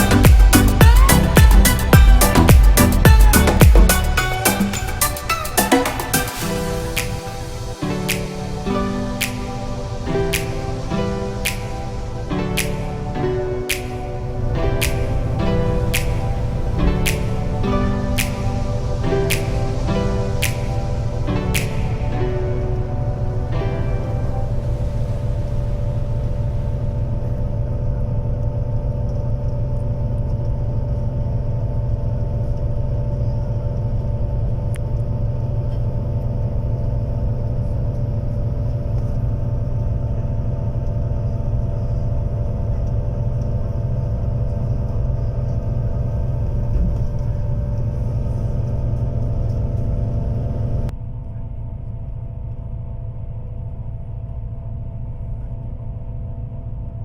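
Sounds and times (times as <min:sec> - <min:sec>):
bus engine rumbling: 0:00.0 - 0:07.8, 0:14.0 - 0:27.5
humming tones: 0:00.0 - 0:51.8.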